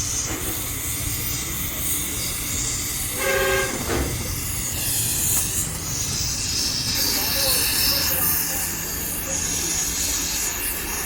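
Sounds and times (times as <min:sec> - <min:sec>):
short horn blast: 0:03.2 - 0:04.0.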